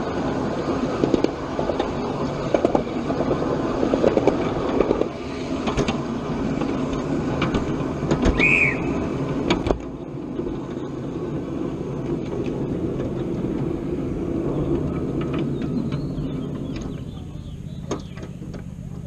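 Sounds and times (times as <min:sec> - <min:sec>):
miniature train rumbling: 0:00.0 - 0:19.0
wheels clicking over track: 0:00.0 - 0:19.0
high squeal: 0:08.3 - 0:09.1.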